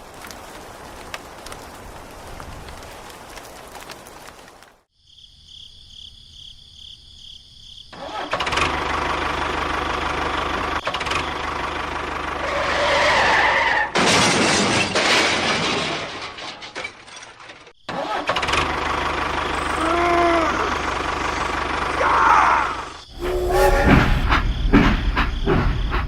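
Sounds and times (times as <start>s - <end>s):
engine running: 8.5s - 12.6s, 18.4s - 22.1s
hissy noise: 23.1s - 25.4s.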